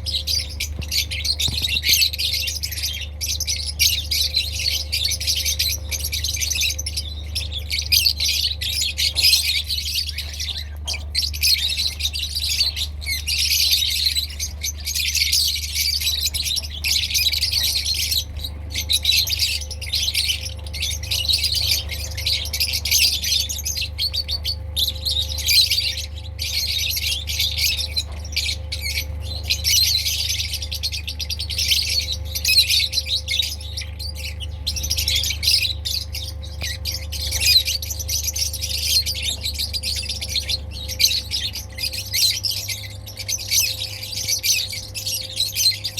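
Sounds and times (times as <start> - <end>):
birds chirping and squawking: 0.0 - 45.9
steady low hum: 0.0 - 45.9.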